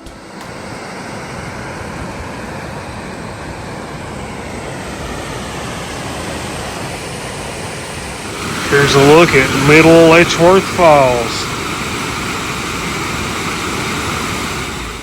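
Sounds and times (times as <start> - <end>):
waterfall roaring: 8.2 - 14.9.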